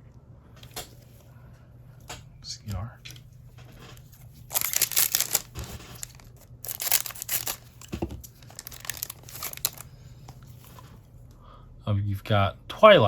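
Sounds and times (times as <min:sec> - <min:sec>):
wrapper crinkling: 0:03.7 - 0:10.9
card pack wrapper tearing: 0:03.9 - 0:10.8.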